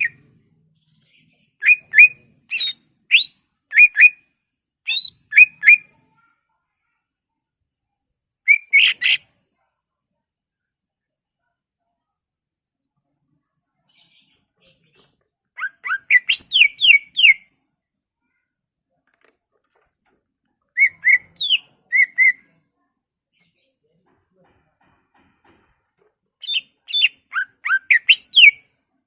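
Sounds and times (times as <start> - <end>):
faint chirps: 0.0 - 24.2
bird whistled song: 1.6 - 4.2, 4.9 - 5.9, 8.4 - 9.2, 15.6 - 17.5, 20.8 - 22.4, 26.4 - 28.6.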